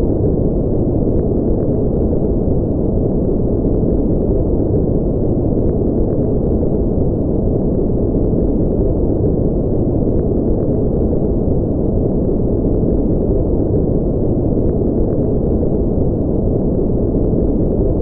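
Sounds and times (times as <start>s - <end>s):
deep white noise: 0.0s - 18.0s.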